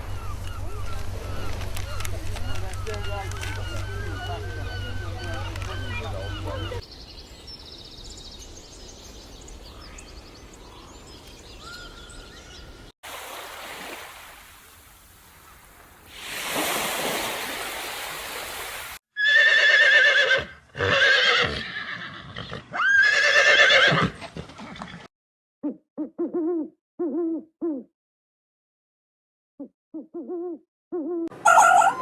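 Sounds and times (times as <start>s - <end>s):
horse whinnying: 19.2s - 25.1s.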